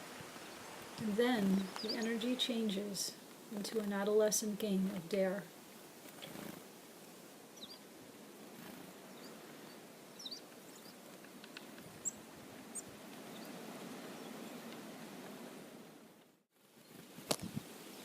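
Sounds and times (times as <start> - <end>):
outdoor background hiss: 0.0 - 18.0
faint high bird chirps: 1.4 - 2.8, 7.6 - 7.8, 9.1 - 11.0.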